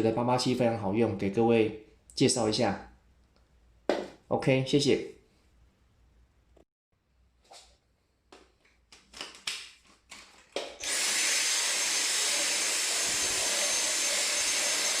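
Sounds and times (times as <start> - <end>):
power tool motor whirring: 10.8 - 15.0.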